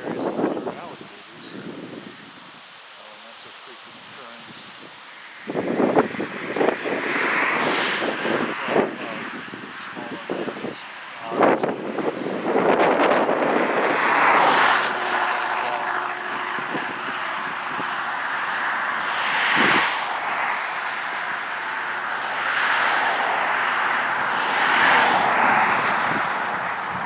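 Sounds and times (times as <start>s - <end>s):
faint low engine drone: 0.0s - 27.0s
steady rushing noise: 0.0s - 27.0s.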